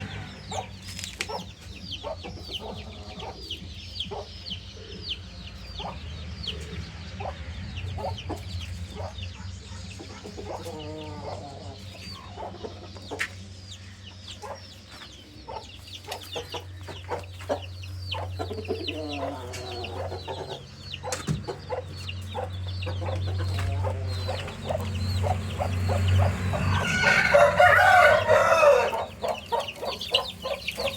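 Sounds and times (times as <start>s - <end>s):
chicks peeping: 0.0s - 30.9s
hen clucking: 0.0s - 30.9s
rooster crowing: 26.5s - 30.9s.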